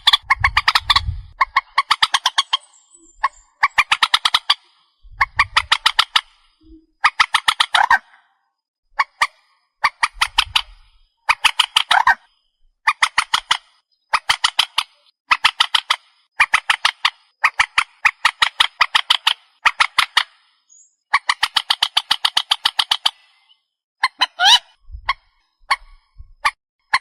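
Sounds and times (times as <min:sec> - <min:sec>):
marsh bird call: 0:00.0 - 0:08.4, 0:09.0 - 0:27.0.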